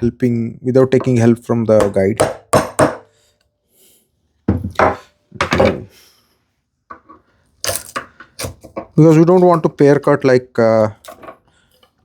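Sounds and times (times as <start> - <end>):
mallet striking chisel into wood: 1.8 - 3.1.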